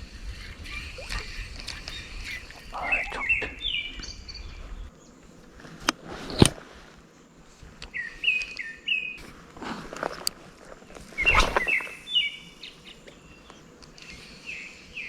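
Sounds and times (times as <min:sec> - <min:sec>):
bird singing: 0:00.0 - 0:05.4, 0:07.1 - 0:09.2, 0:11.0 - 0:15.0.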